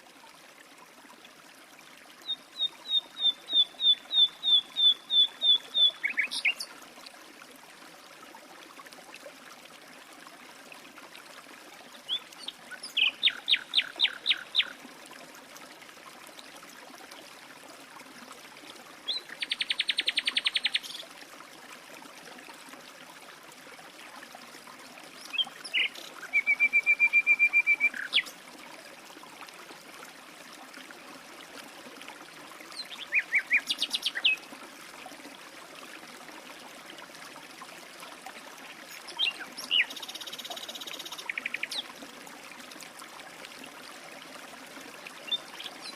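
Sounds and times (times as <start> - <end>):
faint hiss of running water: 0.0 - 45.9
songbirds singing: 2.2 - 6.7, 12.0 - 14.8, 25.2 - 28.3, 32.8 - 34.4, 38.9 - 41.9, 45.2 - 45.9.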